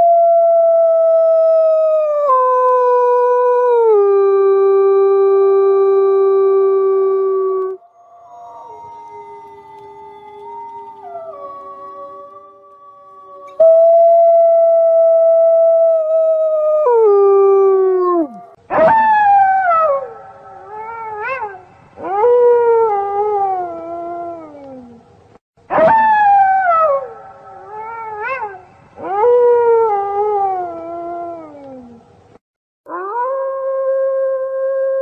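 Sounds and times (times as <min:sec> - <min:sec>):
wolves howling: 0:06.4 - 0:25.0.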